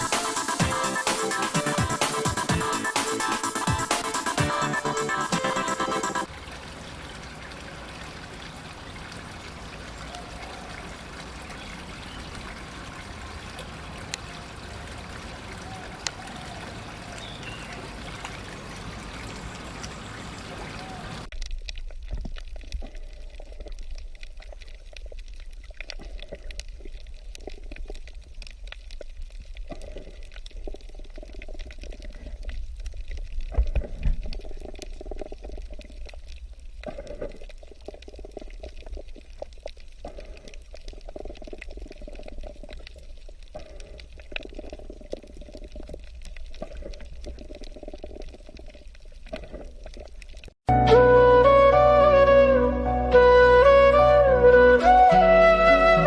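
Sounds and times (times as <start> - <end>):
water rushing: 0.0 - 21.4
water splashing unevenly: 0.0 - 50.6.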